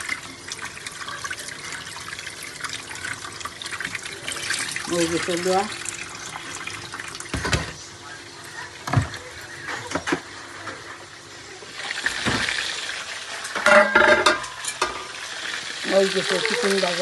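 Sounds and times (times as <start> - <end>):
food frying in hot oil: 0.0 - 17.0
pots and utensils knocking: 13.5 - 15.2.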